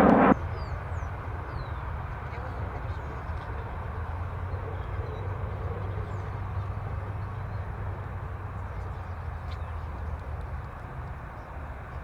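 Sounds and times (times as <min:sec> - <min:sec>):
jet airliner taking off: 0:00.0 - 0:00.4.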